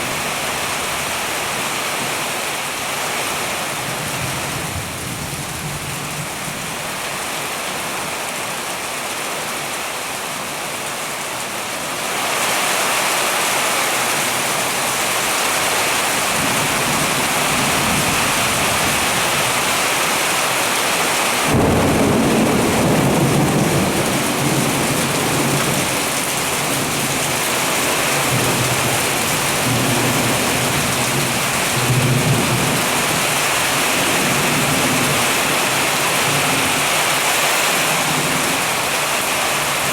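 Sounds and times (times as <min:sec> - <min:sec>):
heavy rain pouring: 0:00.0 - 0:39.9
thunder rumbling: 0:21.4 - 0:36.8.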